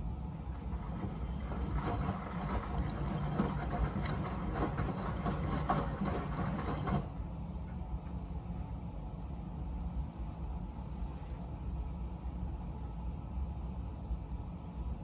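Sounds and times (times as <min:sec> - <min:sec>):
low steady hum: 0:00.0 - 0:15.0
washing machine drum sloshing: 0:00.4 - 0:07.2.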